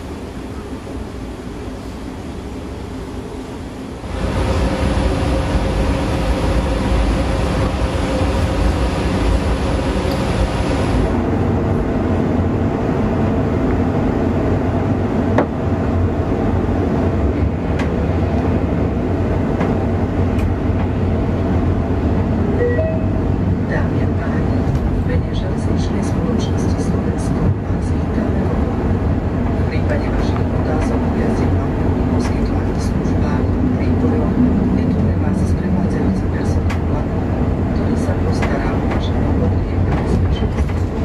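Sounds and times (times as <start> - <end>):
train coach rumbling on rails: 0.0 - 41.0.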